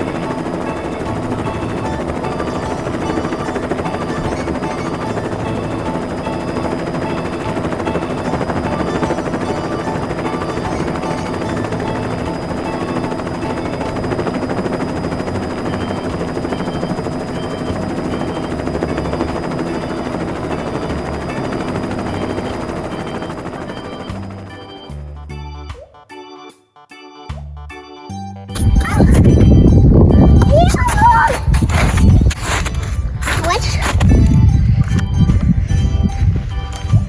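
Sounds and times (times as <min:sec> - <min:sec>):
helicopter rotor chopping: 0:00.0 - 0:25.8, 0:28.5 - 0:37.0.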